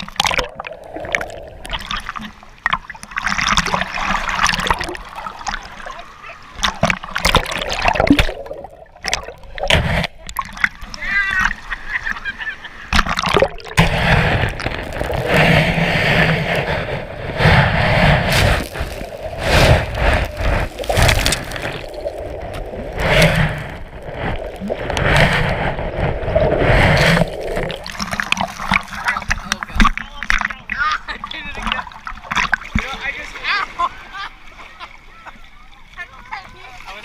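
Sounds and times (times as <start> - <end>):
water splashing and sloshing: 0.0 - 37.0
voices: 10.7 - 12.9.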